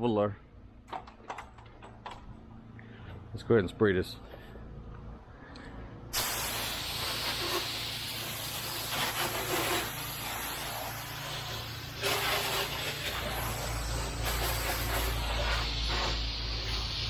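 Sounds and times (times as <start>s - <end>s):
pressure washer spraying water: 6.2s - 17.0s.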